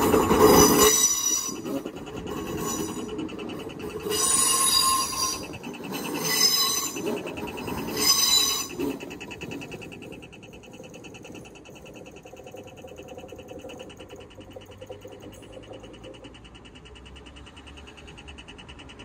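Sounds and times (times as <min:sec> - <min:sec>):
crossing warning bell ringing: 0:00.0 - 0:12.1
train rumbling past: 0:00.0 - 0:19.0
train wheels squealing: 0:00.0 - 0:19.0.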